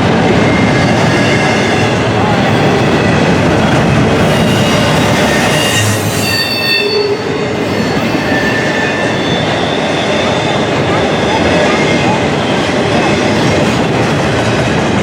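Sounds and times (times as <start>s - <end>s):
train wheels rumbling on rails: 0.0s - 15.0s
high wheel squeal: 4.1s - 13.5s.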